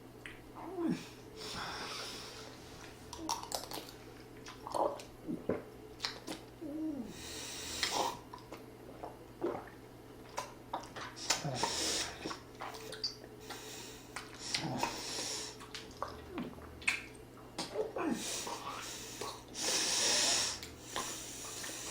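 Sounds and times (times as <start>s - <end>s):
slurping and chewing: 7.3s - 21.9s.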